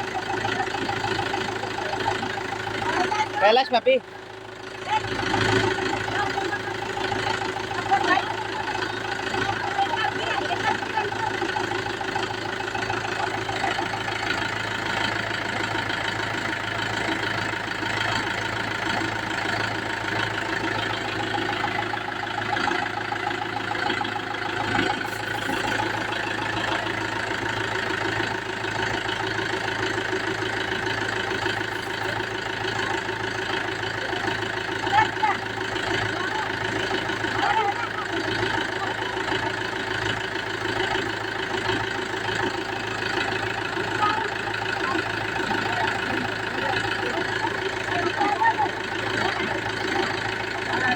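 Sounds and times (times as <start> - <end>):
tractor diesel engine idling: 0.0 - 50.9.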